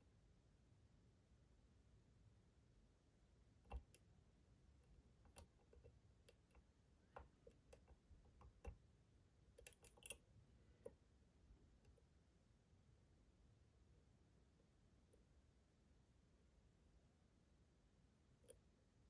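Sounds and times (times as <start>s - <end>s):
faint lock-picking clicks: 3.7s - 4.1s, 4.8s - 8.8s, 9.6s - 10.2s.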